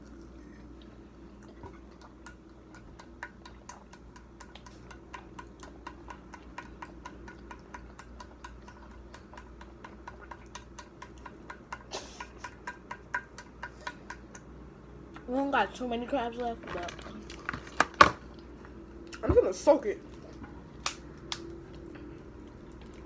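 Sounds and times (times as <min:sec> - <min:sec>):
crab shell cracking: 0:20.8 - 0:21.6.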